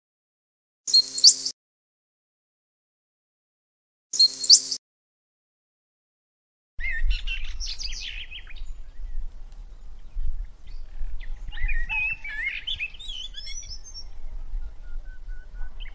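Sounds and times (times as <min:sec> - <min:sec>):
songbirds chirping: 0:06.8 - 0:15.9.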